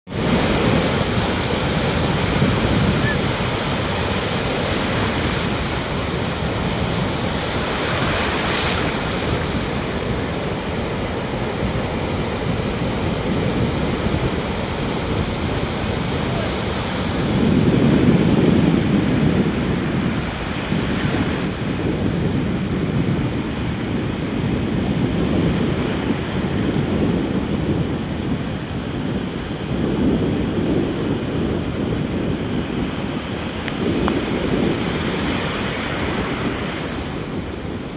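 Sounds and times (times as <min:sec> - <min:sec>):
rough surf breaking: 0:00.1 - 0:37.9
wind buffeting microphone: 0:00.1 - 0:37.9.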